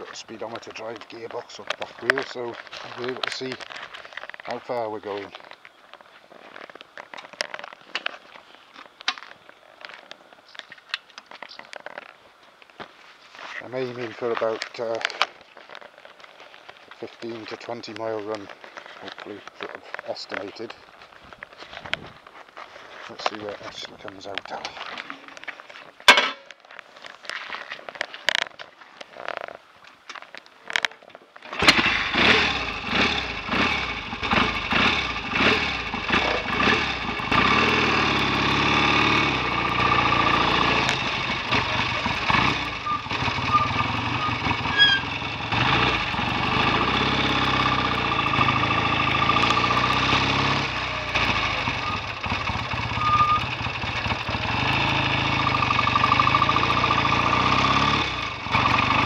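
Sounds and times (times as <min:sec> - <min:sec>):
motorcycle engine revving and running: 0:31.6 - 0:59.0.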